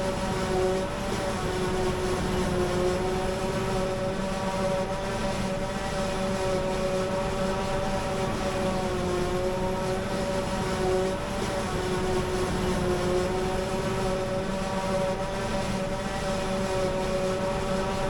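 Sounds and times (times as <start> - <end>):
farm machinery engines droning: 7.9 - 14.9.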